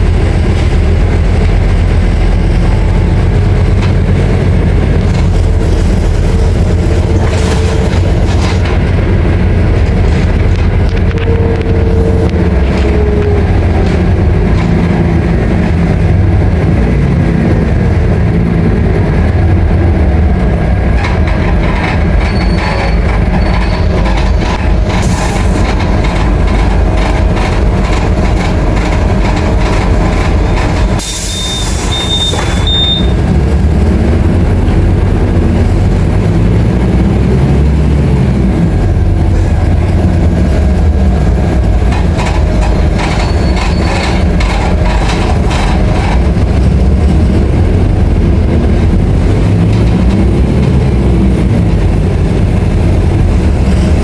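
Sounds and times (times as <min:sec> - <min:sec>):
bus diesel engine droning: 0:00.0 - 0:54.0
high beeps: 0:31.3 - 0:33.2.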